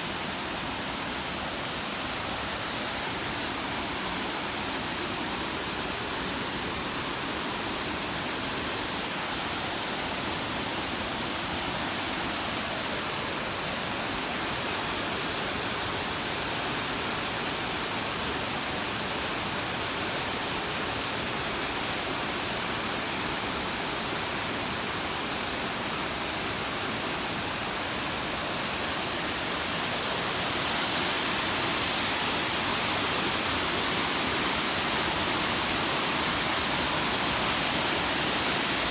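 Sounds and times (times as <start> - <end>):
waterfall rushing: 24.2 - 38.9.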